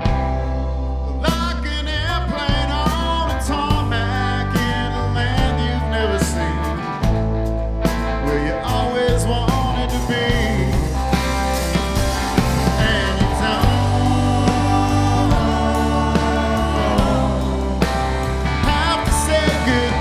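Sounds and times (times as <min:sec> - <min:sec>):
rock band playing: 0:00.0 - 0:20.0
steady drum hits: 0:09.2 - 0:20.0.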